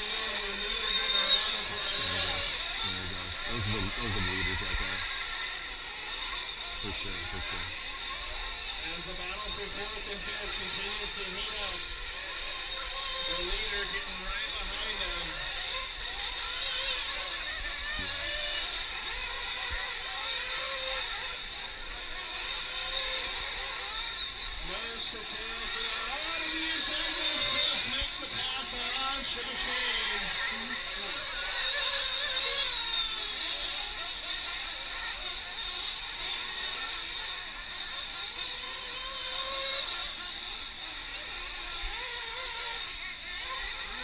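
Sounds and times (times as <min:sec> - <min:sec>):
engine revving up: 0:00.0 - 0:05.4, 0:06.2 - 0:07.8
rc truck engines buzzing: 0:00.0 - 0:44.0.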